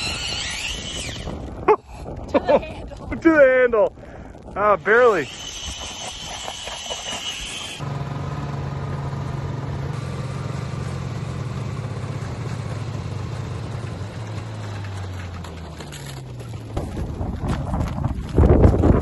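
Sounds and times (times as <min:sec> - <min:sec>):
engine running: 0:05.1 - 0:19.0.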